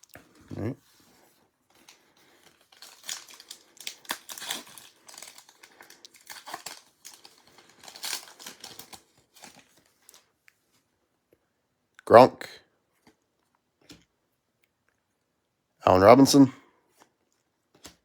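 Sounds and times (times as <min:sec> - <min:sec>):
foil wrapper tearing and crinkling: 0:01.8 - 0:10.3.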